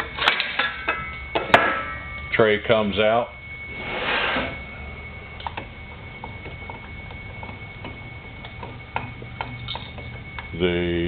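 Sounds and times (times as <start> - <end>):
saw tray sliding scrape: 3.7 - 4.6.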